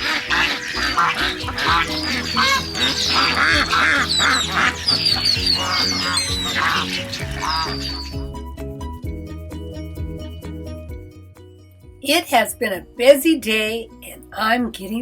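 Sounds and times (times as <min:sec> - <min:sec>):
ducks quacking: 0:00.0 - 0:08.3
light background music: 0:00.0 - 0:15.0.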